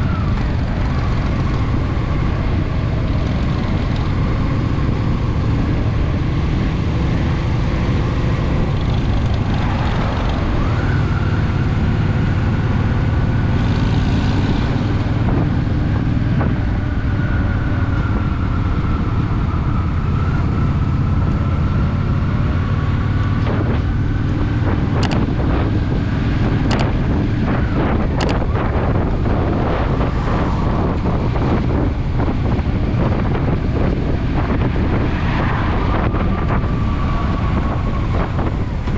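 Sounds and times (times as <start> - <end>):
wind on microphone: 0.0 - 38.9
motorcycle engine running: 20.0 - 30.0.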